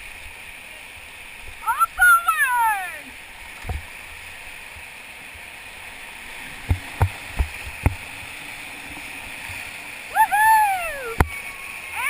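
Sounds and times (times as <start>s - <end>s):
whitewater rapids rushing: 0.7s - 3.3s, 5.7s - 12.0s.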